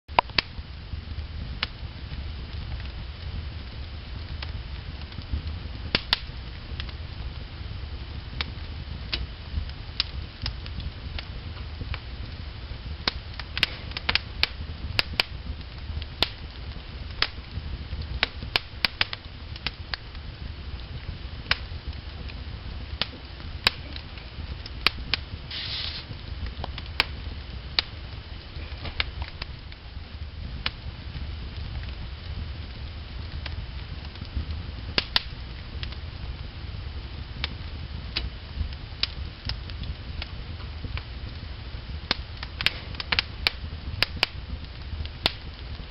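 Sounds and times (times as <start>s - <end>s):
low fire rumble: 0.1s - 45.9s
wood fire crackling and popping: 0.1s - 45.9s
brief hiss: 25.5s - 26.1s.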